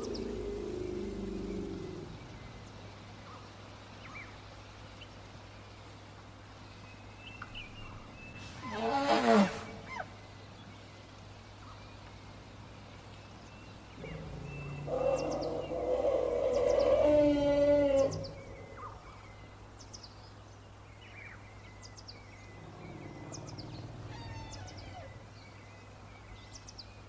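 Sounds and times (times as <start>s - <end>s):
elephant trumpeting: 8.5s - 10.1s, 14.0s - 19.0s, 22.6s - 25.4s
faint bird chirps: 9.6s - 20.3s, 21.0s - 27.0s.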